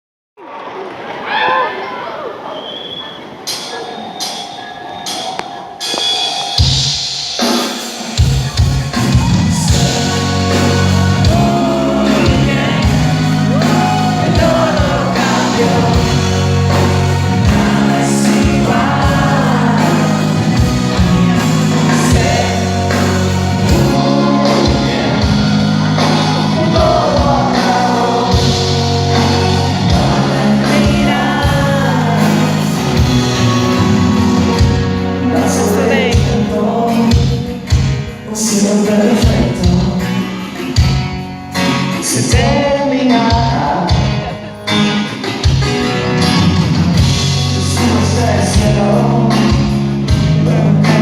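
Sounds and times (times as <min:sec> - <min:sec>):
drums: 0:02.6 - 0:51.0
repeating bass line: 0:08.2 - 0:37.3
person singing: 0:09.0 - 0:40.4, 0:42.0 - 0:44.6, 0:47.0 - 0:51.0.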